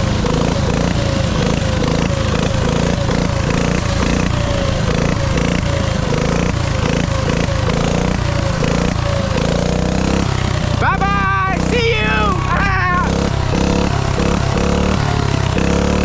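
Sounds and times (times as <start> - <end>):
dirt bike engine running: 0.0 - 16.0
short falling whine: 3.5 - 7.6.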